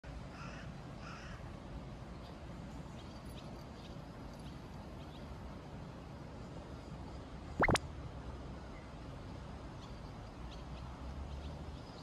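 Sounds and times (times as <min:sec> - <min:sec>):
low background noise: 0:00.0 - 0:12.0
faint short chirps: 0:07.6 - 0:07.8.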